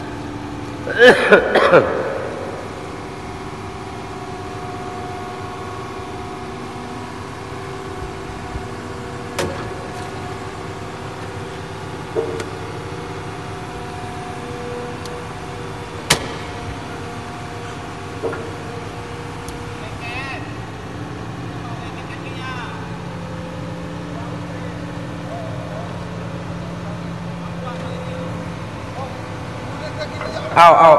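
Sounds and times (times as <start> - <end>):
excavator diesel engine running: 0.0 - 30.9
sharp metal knocks: 16.1 - 16.8.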